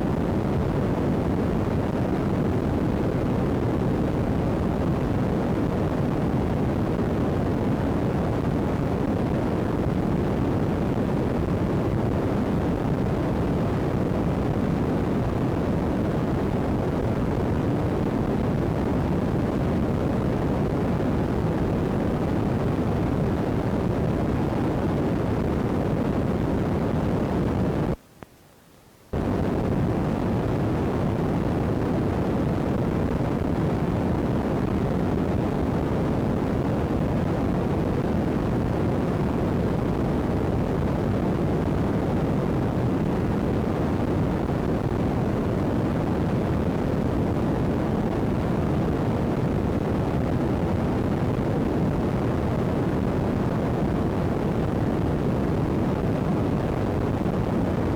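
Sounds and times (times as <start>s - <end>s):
low rushing microphone noise: 29.1s - 57.9s.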